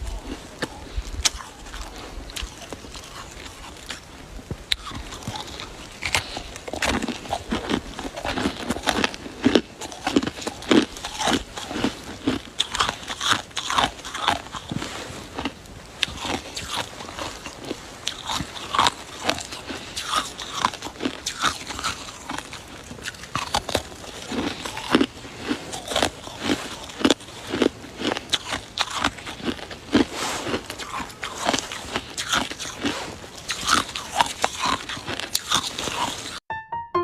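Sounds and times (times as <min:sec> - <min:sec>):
chewing crunchy ice: 0:00.0 - 0:36.4.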